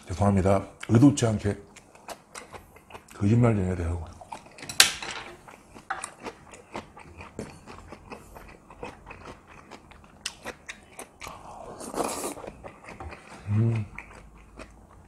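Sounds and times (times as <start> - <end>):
chewing and biting: 1.6 - 3.2, 5.3 - 15.0.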